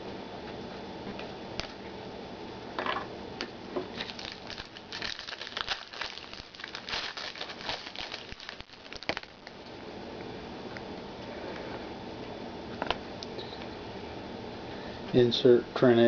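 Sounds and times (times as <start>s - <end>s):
trading cards rustling and clicking: 4.0s - 9.6s.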